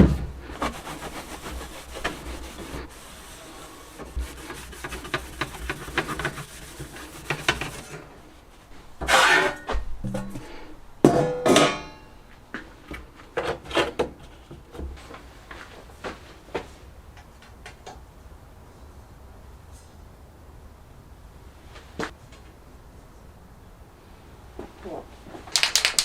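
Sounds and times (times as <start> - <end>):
scraping strokes: 0.4 - 10.5
short rubbing strokes: 0.5 - 8.0.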